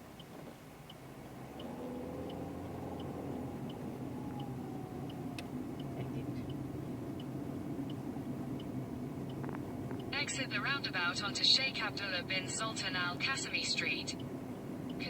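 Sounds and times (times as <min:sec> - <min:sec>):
car engine and road noise: 0:00.0 - 0:15.0
turn signal ticking: 0:00.0 - 0:15.0.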